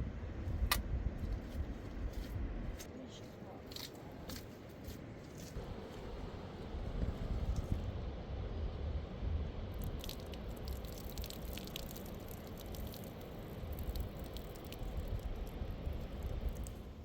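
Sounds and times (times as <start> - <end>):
small sharp drips and clicks: 9.7 - 17.0.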